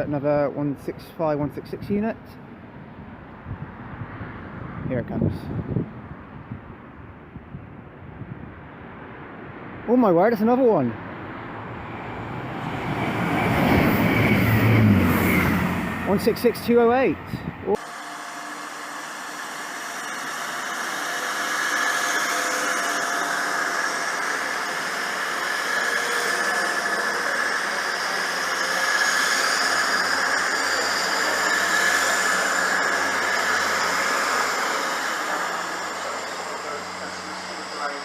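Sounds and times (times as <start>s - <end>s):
train engine drone: 0.0s - 38.0s
whining tones: 11.2s - 38.0s.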